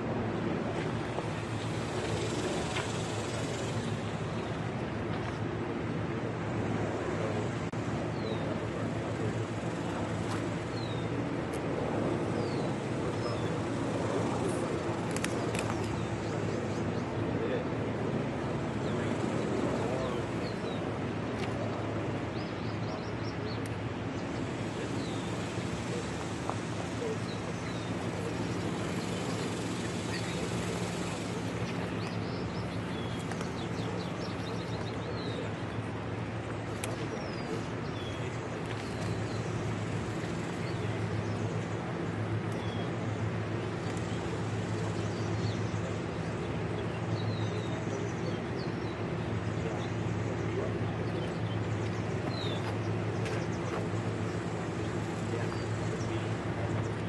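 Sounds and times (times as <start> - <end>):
low machine hum: 0.0 - 57.0
birds chirping: 11.8 - 57.0.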